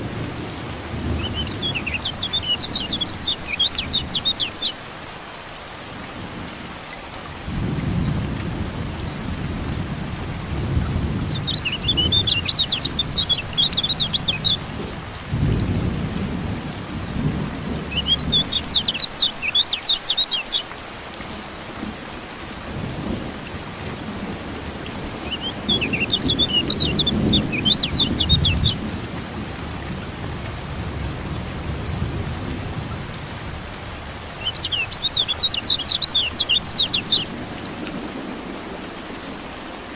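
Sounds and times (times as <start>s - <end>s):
rain: 0.0s - 39.9s
bird chirping rapidly: 0.8s - 4.8s, 11.2s - 14.6s, 17.5s - 20.7s, 24.8s - 28.8s, 34.4s - 37.3s
rolling thunder: 22.7s - 34.3s.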